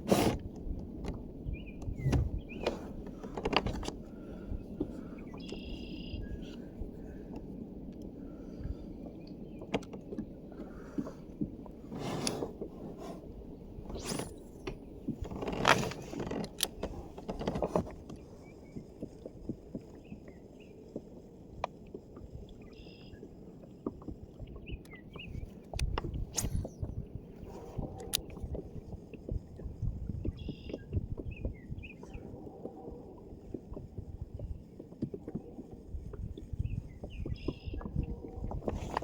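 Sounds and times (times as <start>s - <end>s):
clicks and knocks against hull: 0.0s - 13.2s, 13.8s - 22.3s, 23.8s - 32.8s, 33.4s - 39.0s
water swishes: 0.0s - 39.0s
faint bird chirps: 5.0s - 6.5s, 22.7s - 23.3s, 30.3s - 32.3s, 36.6s - 37.9s.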